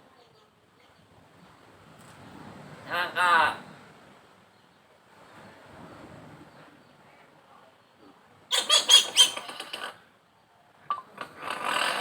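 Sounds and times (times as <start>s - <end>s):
myna bird calling: 8.5s - 9.9s.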